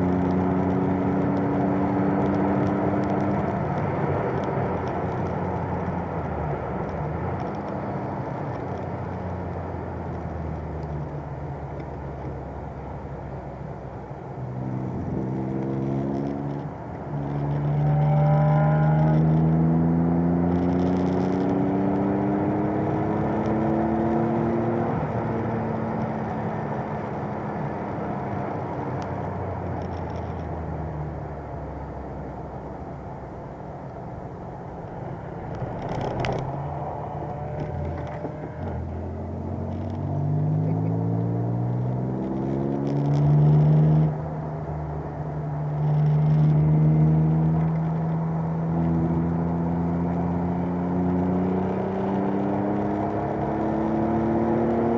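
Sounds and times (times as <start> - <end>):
engine revving: 14.5 - 26.5, 34.8 - 54.9.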